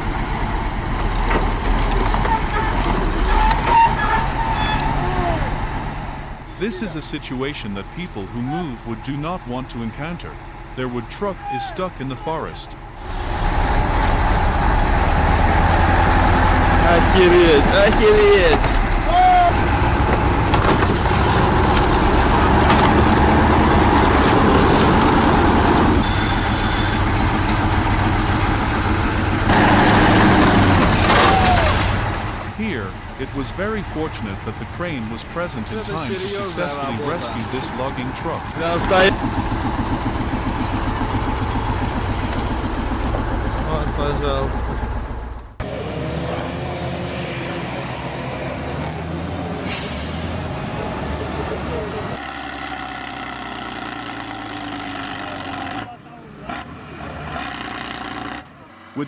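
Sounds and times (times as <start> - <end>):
diesel truck engine running: 0.0 - 58.8.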